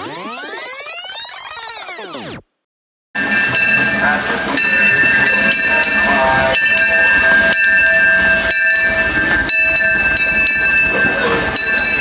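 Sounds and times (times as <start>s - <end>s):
steam train high-pitched tones: 3.2s - 12.0s.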